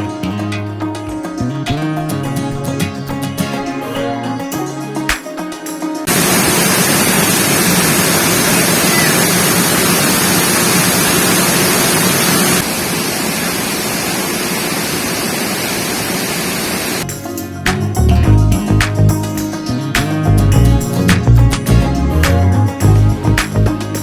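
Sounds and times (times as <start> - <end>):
falling water rushing: 6.1 - 17.0.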